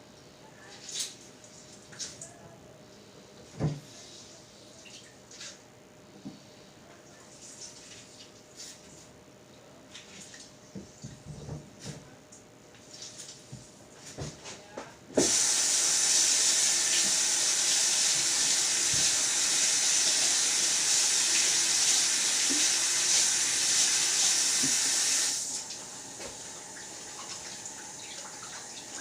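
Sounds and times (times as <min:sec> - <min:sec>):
tap water running: 0:15.2 - 0:29.0.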